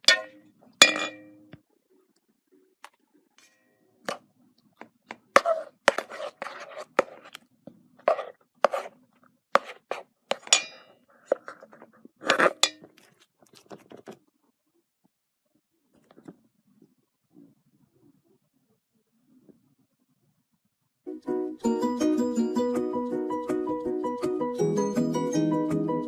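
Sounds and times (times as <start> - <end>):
hard objects tapping and clinking: 0.0 - 1.4, 10.3 - 11.5.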